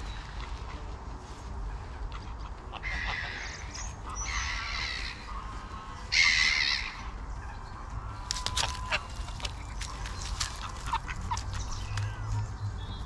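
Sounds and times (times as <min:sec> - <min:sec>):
harsh raspy bird calls: 0:01.6 - 0:13.0.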